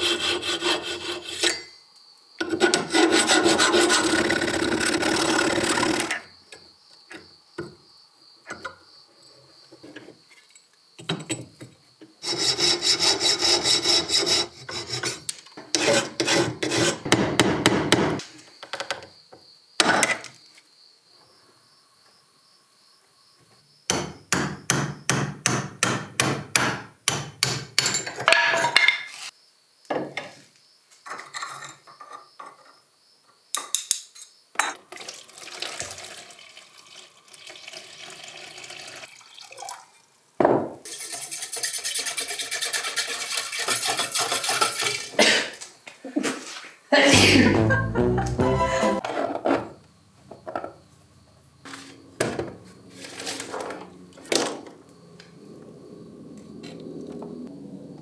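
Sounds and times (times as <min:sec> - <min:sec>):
hand tool scraping a workpiece: 0:00.0 - 0:01.8, 0:02.4 - 0:06.3, 0:12.2 - 0:17.2, 0:40.9 - 0:45.4.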